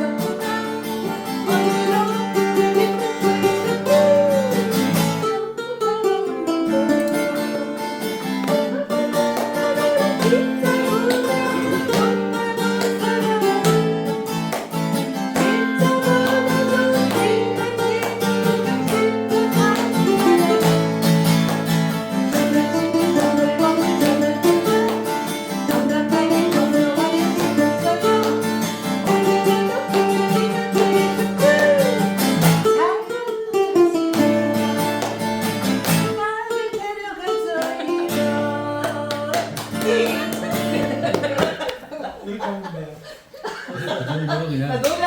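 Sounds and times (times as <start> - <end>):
acoustic guitar strumming: 0.0 - 41.8
ukulele strumming: 0.0 - 41.9.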